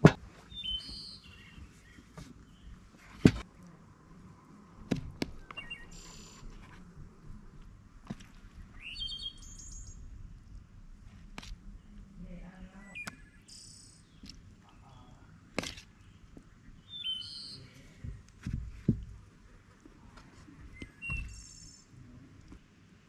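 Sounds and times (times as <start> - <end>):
birds chirping: 0.4 - 3.4, 5.2 - 6.6, 8.2 - 10.1, 11.6 - 18.5, 20.6 - 22.0
sharp knocks and clatters: 18.0 - 19.2.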